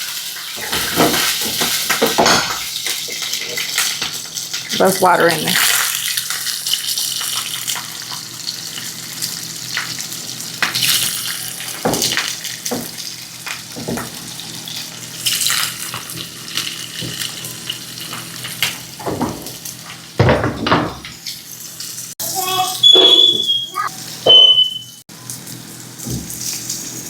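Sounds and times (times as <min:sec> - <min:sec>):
sausage sizzling in oil: 0:00.0 - 0:27.0.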